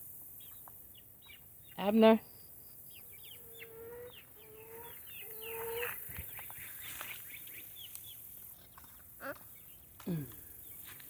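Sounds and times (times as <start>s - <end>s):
hen low calls: 3.0s - 7.1s
chicks peeping: 3.0s - 9.7s.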